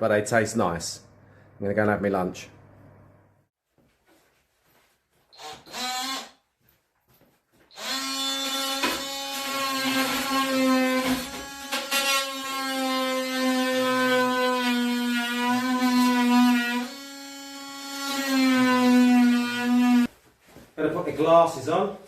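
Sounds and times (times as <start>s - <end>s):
power tool buzzing: 5.3s - 6.4s, 7.7s - 20.1s.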